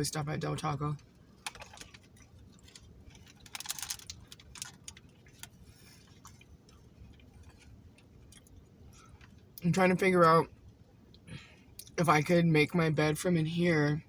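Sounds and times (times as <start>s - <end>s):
faint eating clicks: 1.0s - 9.6s.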